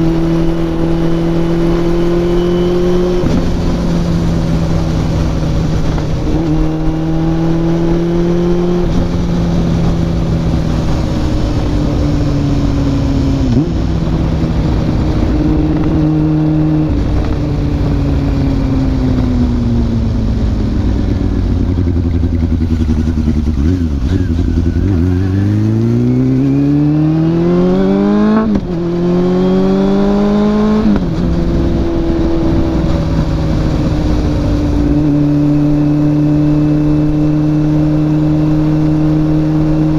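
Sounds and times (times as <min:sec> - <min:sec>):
motorcycle engine cruising and revving: 0:00.0 - 0:39.9.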